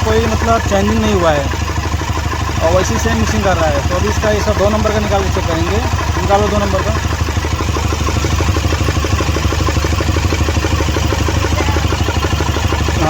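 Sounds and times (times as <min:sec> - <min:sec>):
diesel engine idling roughly: 0:00.0 - 0:13.0.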